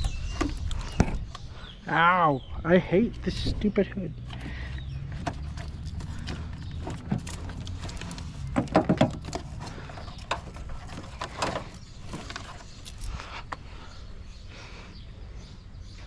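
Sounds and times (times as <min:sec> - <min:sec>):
rattling knocks: 0:04.1 - 0:12.7
clicks and knocks of hand work: 0:04.1 - 0:13.6.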